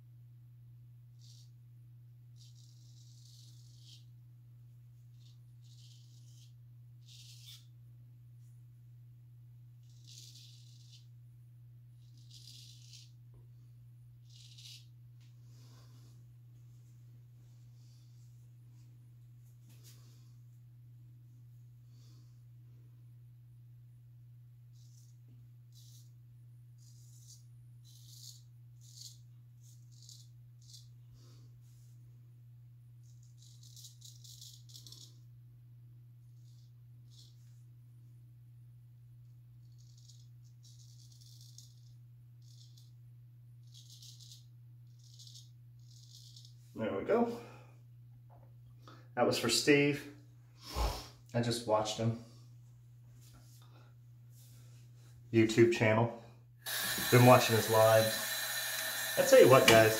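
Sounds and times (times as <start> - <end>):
low electrical hum: 0.0 - 59.9
razor scraping stubble: 1.1 - 1.6, 2.3 - 4.2, 5.1 - 7.7, 9.8 - 11.2, 12.0 - 13.2, 14.2 - 15.0, 24.7 - 26.2, 26.8 - 31.0, 33.0 - 35.2, 56.6 - 59.9.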